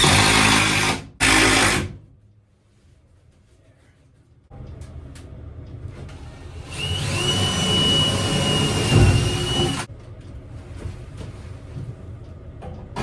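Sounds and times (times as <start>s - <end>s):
electric motor rushing: 6.6s - 9.9s.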